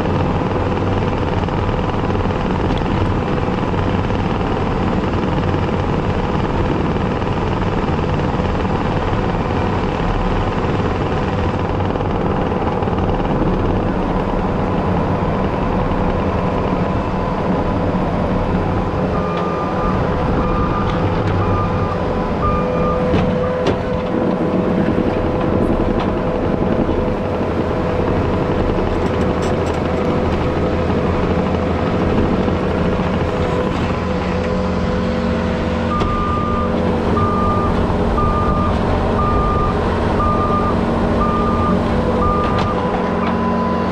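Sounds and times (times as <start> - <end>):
diesel engine running: 0.0 - 43.9
short beeps: 19.2 - 23.1, 35.9 - 43.9.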